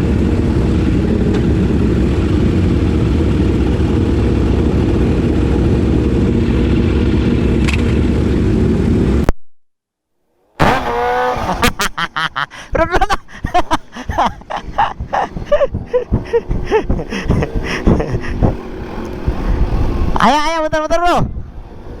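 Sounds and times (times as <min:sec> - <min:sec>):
motorcycle engine running: 0:00.0 - 0:09.2
wind and road noise: 0:00.0 - 0:09.3, 0:10.4 - 0:22.0.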